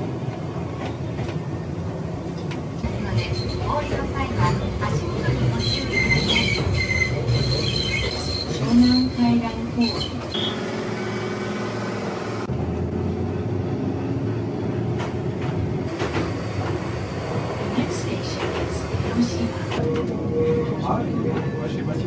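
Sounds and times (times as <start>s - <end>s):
train wheels rumbling on track: 0.0s - 22.0s
high wheel squeal: 5.5s - 12.5s.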